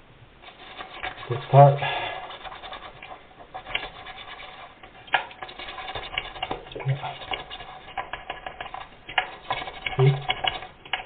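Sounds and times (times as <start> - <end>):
toothbrush scrubbing plastic: 0.4 - 11.0
small clicks and taps: 6.0 - 11.0.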